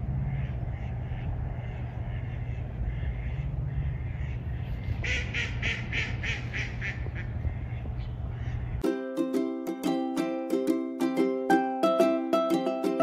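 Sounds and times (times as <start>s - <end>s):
ducks quacking: 0.0s - 8.8s
steady low rumble: 0.0s - 8.8s.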